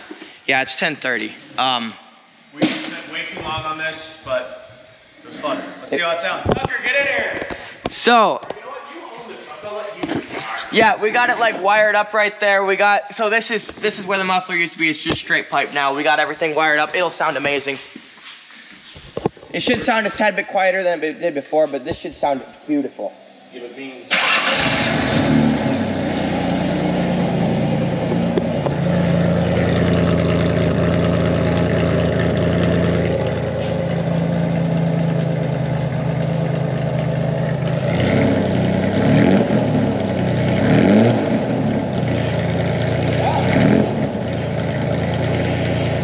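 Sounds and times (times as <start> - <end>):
truck engine idling and revving: 24.2 - 46.0.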